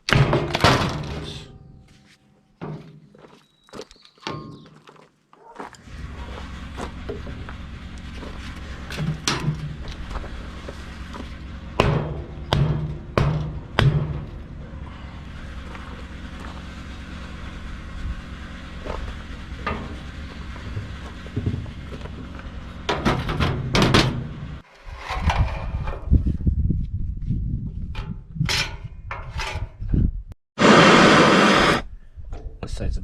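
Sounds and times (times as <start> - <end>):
steady low hum: 5.8 - 24.6.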